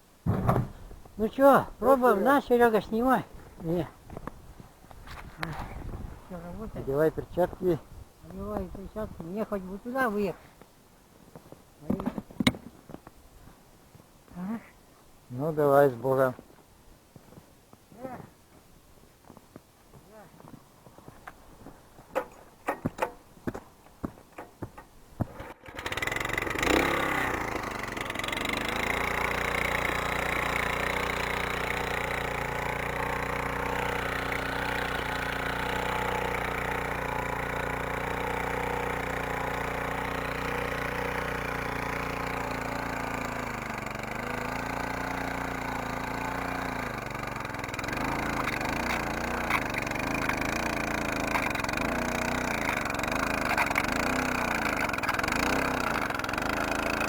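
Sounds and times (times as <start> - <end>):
walk-behind tractor engine running: 21.0 - 57.0.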